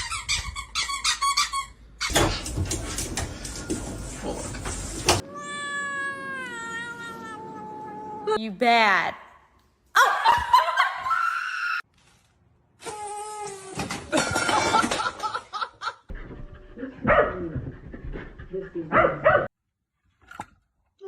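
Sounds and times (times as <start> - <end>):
dog barking and yipping: 17.0 - 17.5, 18.9 - 19.5.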